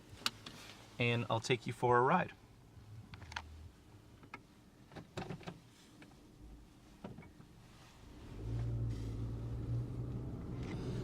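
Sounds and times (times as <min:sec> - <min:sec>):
car engine and road noise: 0:02.4 - 0:11.0
clicks and knocks in car cabin: 0:04.2 - 0:06.2, 0:07.0 - 0:07.5.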